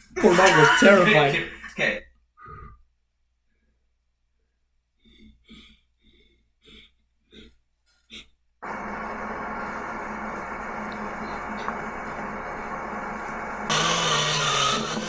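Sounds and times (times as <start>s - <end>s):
loud steady noise: 8.6s - 15.0s.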